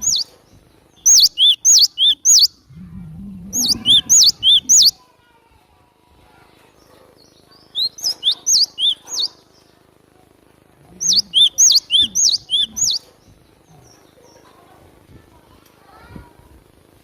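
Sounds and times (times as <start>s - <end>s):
tit singing high whistled notes: 1.1s - 2.6s, 3.6s - 5.0s, 7.8s - 9.3s, 11.0s - 13.1s.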